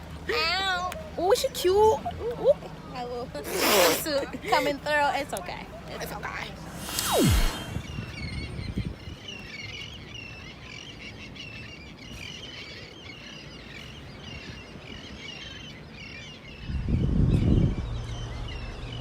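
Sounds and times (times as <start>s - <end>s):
birds chirping: 0.0s - 19.0s
loud low rumble: 6.7s - 8.5s, 16.7s - 19.0s.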